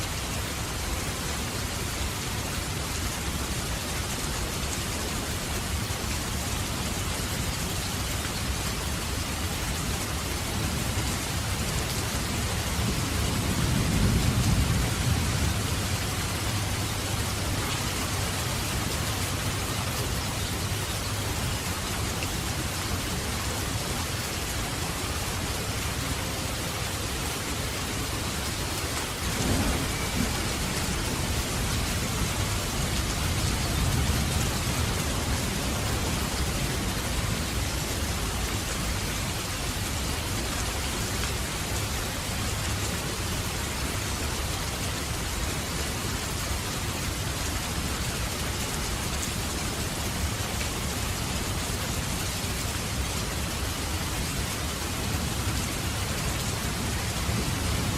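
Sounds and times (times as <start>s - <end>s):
heavy rain: 0.0s - 57.9s
low rolling thunder: 12.5s - 18.8s, 29.1s - 37.4s.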